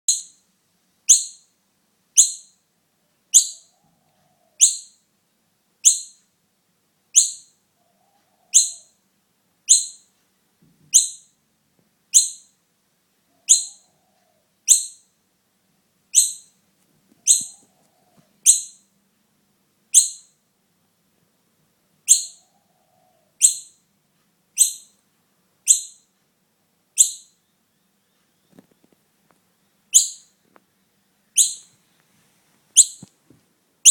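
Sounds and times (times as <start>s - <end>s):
bird high piercing peeps: 0.1s - 0.4s, 1.1s - 1.5s, 2.2s - 2.6s, 3.3s - 3.8s, 4.6s - 5.0s, 5.8s - 6.2s, 7.1s - 7.6s, 8.4s - 9.0s, 9.7s - 10.1s, 10.9s - 11.4s, 12.1s - 12.6s, 13.4s - 14.0s, 14.7s - 15.1s, 16.1s - 16.6s, 17.2s - 18.9s, 19.9s - 20.4s, 22.1s - 22.6s, 23.4s - 23.8s, 24.6s - 25.0s, 25.6s - 26.1s, 27.0s - 28.6s, 29.9s - 30.4s, 31.4s - 31.8s, 32.8s - 33.1s.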